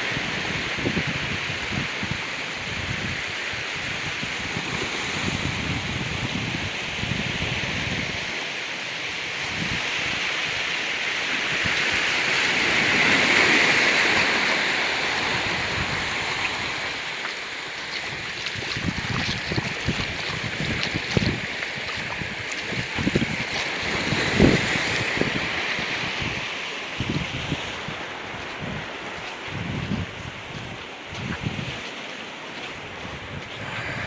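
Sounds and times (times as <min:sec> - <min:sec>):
ocean waves on rocky beach: 0:00.0 - 0:34.0
wind buffeting microphone: 0:15.2 - 0:32.0, 0:32.6 - 0:34.0.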